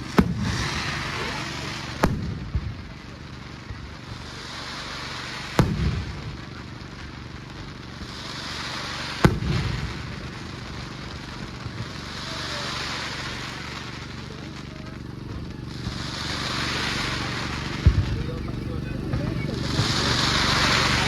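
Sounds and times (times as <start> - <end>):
low rumbling echo: 0.0 - 4.2, 15.0 - 21.0
fireworks bangs: 0.0 - 21.0
high hissing haze: 0.0 - 21.0.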